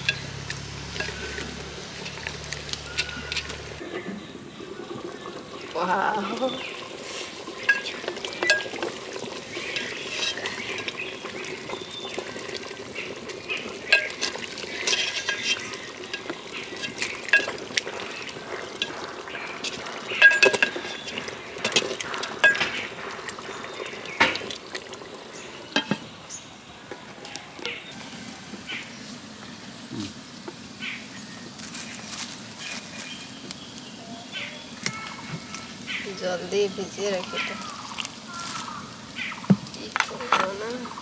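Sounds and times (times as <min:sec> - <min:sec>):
metal utensil scraping clay pot: 0:00.0 - 0:03.8, 0:06.6 - 0:23.5
cooking hiss: 0:00.0 - 0:41.0.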